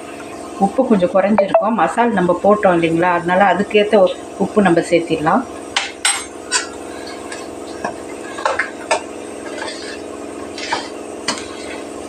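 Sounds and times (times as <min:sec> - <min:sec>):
steady low hum: 0:01.3 - 0:03.6
metal spoon scraping a pan: 0:06.1 - 0:12.0.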